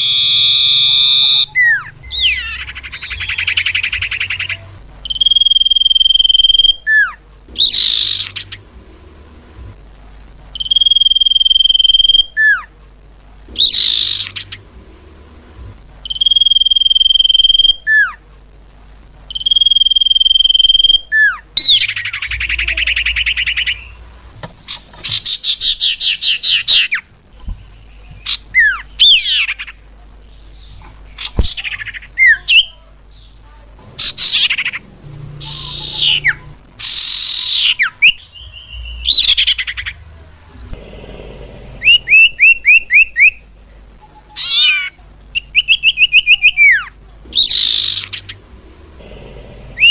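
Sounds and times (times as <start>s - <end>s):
birds calling with whistles and trills: 0.0s - 8.7s, 13.5s - 14.6s, 19.3s - 24.0s, 24.7s - 29.8s, 34.0s - 40.0s, 41.8s - 43.4s, 44.4s - 48.4s.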